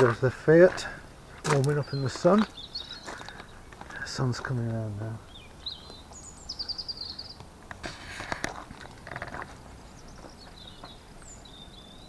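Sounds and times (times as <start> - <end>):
scuffing and clicking: 0.0 - 4.0
small birds chirping: 0.0 - 12.0.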